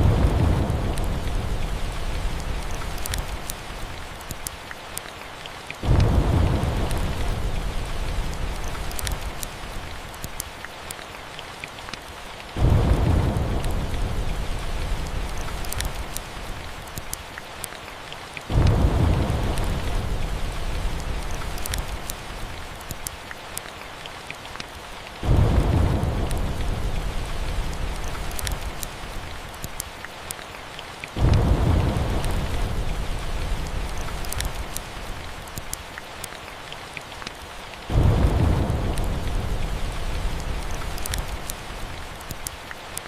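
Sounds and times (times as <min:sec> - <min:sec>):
thunder rolling: 0:00.0 - 0:02.8, 0:05.8 - 0:08.9, 0:12.6 - 0:16.2, 0:18.5 - 0:22.0, 0:25.2 - 0:28.8, 0:31.2 - 0:34.8, 0:37.9 - 0:41.5
steady rain: 0:00.0 - 0:43.0
wood fire crackling: 0:00.0 - 0:43.0.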